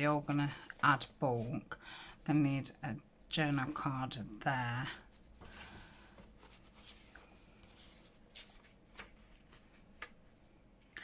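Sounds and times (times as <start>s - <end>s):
paper pages rustling: 3.4s - 10.4s.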